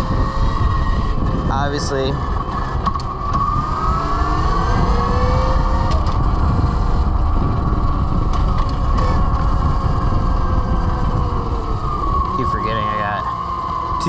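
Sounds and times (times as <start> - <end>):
electric motor whining: 0.0 - 14.0
wind rumbling on microphone: 0.0 - 14.0.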